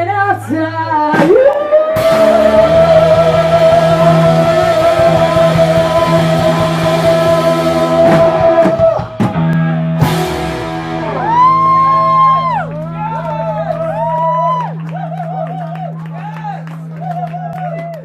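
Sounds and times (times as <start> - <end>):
distorted electric guitar: 1.0 - 15.9
drum hits: 3.4 - 12.6.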